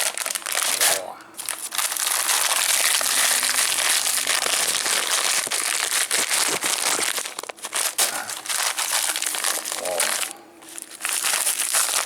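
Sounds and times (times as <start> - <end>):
candy wrapper crinkling: 0.0 - 12.0.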